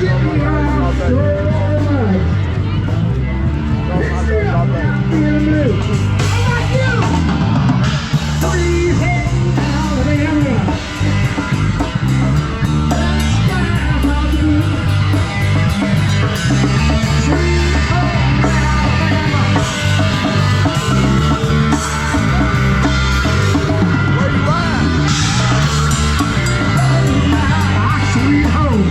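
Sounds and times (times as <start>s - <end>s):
person singing: 0.0s - 2.6s, 8.2s - 11.5s, 12.6s - 23.0s, 23.6s - 28.9s
bass notes: 0.0s - 28.9s
drums and cymbal beat: 0.0s - 28.9s
electric guitar: 0.0s - 28.9s.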